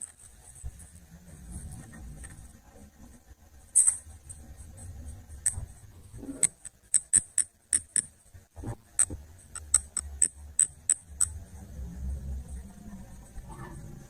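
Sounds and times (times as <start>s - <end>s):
low hum: 10.3s - 14.0s.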